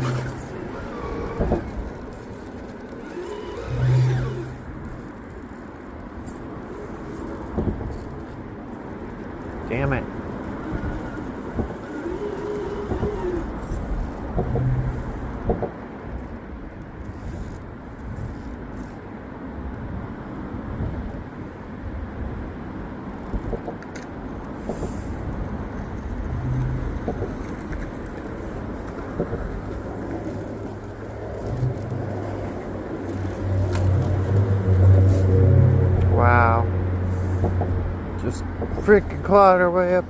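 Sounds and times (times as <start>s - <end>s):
electric motor whining: 0.0s - 5.5s, 10.4s - 15.4s
clicks and knocks from chassis: 0.0s - 19.1s, 23.2s - 35.1s, 37.4s - 39.3s
outdoor background noise: 0.0s - 40.0s.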